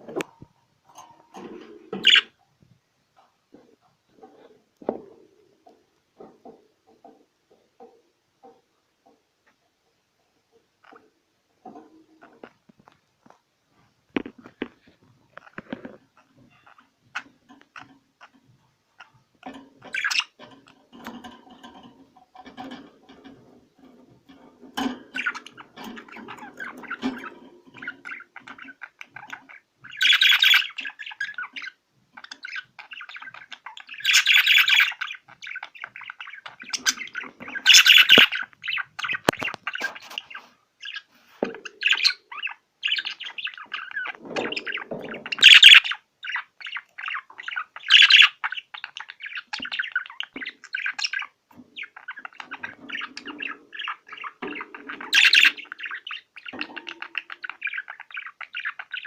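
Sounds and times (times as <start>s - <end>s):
small birds chirping and squawking: 0.0s - 2.5s, 3.2s - 59.0s.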